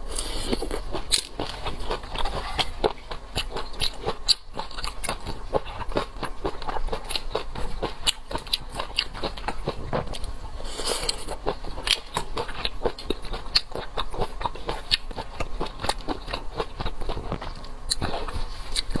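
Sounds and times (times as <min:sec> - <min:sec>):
seafood being chewed: 0:00.0 - 0:19.0.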